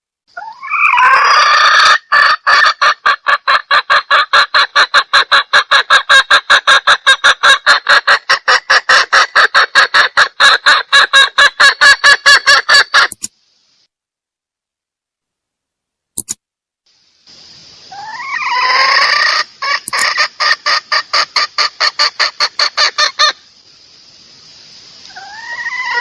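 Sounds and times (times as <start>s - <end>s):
hen squawking: 0.4s - 13.2s, 17.9s - 23.4s, 25.1s - 26.0s
rapid hen clucks: 0.4s - 13.3s, 17.9s - 23.4s, 25.0s - 26.0s.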